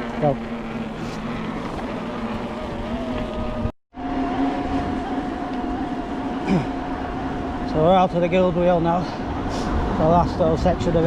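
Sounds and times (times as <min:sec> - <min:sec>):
electric bike motor whine: 0:00.0 - 0:11.0
wind noise on microphone: 0:09.2 - 0:11.0.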